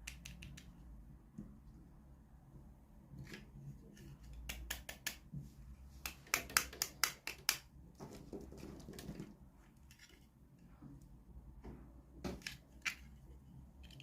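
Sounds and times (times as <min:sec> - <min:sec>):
plastic toys clicking and tapping: 0:00.0 - 0:00.8, 0:04.2 - 0:05.3, 0:06.0 - 0:10.2, 0:12.3 - 0:14.0.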